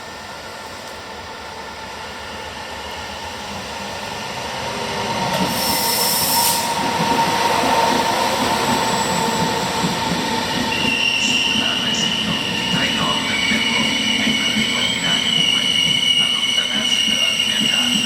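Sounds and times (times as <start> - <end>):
train rumbling past on rails: 0.0 - 18.0
thin steady squeal: 10.8 - 18.0.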